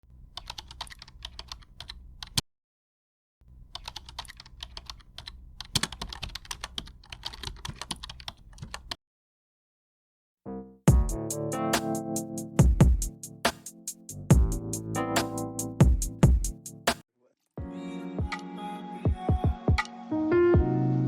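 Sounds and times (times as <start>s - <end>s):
rapid typing on keyboard: 0.4s - 2.4s, 3.7s - 9.0s.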